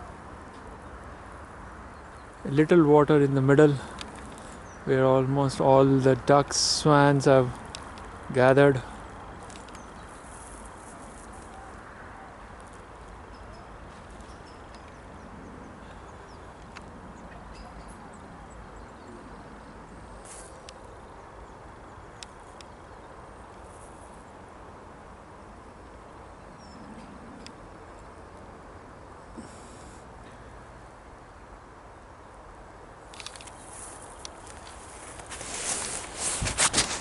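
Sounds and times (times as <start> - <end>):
low hiss and rumble: 0.0 - 14.5
small clicks: 33.1 - 34.8.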